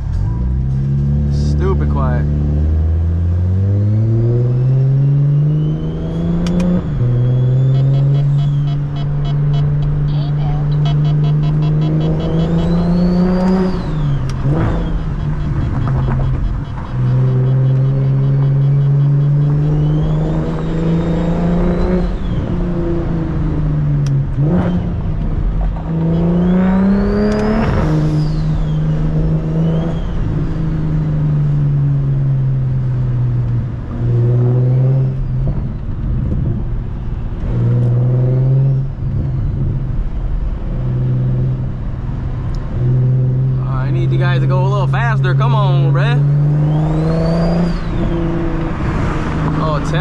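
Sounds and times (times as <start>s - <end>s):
car engine driving at low revs: 0.0s - 50.0s
high turbo whistle: 5.1s - 9.8s.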